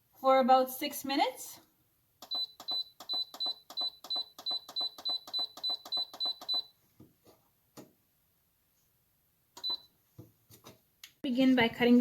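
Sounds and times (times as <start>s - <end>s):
control panel beeping: 2.2s - 6.7s, 9.6s - 9.8s.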